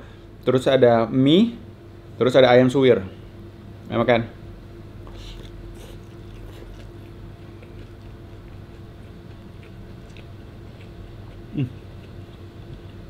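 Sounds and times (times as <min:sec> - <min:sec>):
person chewing food: 0:05.0 - 0:13.0
person humming mm: 0:11.5 - 0:11.9.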